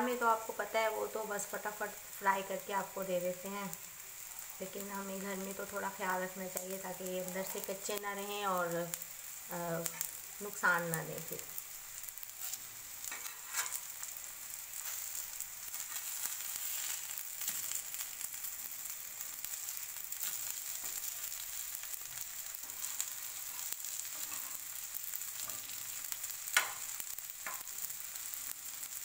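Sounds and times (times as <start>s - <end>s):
oil sizzling: 0.0s - 29.0s
metal spatula scraping griddle: 12.4s - 14.1s, 14.8s - 17.8s, 22.7s - 24.6s.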